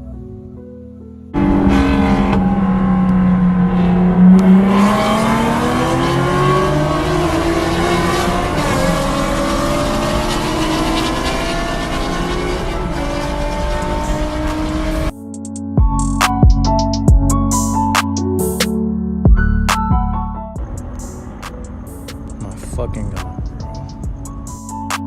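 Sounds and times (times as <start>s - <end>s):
music: 0.0s - 1.4s, 12.8s - 25.0s
car engine running: 1.4s - 15.1s, 20.6s - 24.8s.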